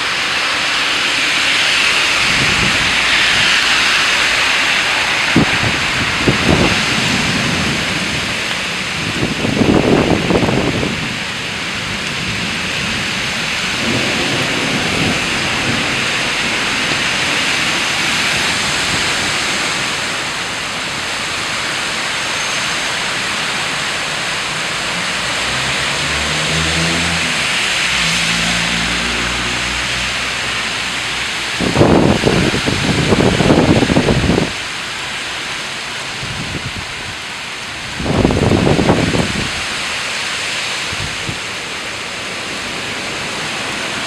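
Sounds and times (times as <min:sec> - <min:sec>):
heavy rain: 0:00.0 - 0:44.0
thunder rumbling: 0:01.8 - 0:22.5, 0:25.9 - 0:34.6.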